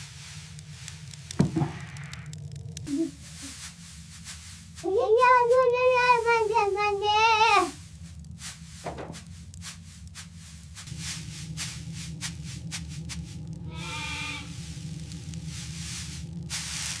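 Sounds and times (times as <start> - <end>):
faint clicks: 0.0 - 2.9
low steady rumble: 0.0 - 17.0
sheep bleating: 13.7 - 14.6.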